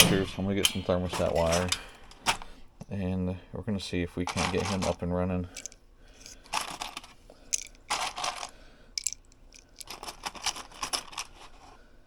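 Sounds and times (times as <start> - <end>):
rummaging through small parts: 4.2 - 11.8.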